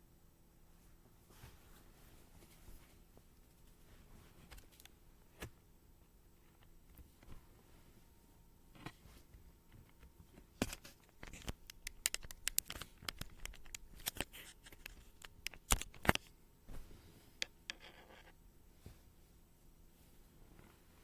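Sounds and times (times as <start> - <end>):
sharp clicks: 11.2 - 16.2.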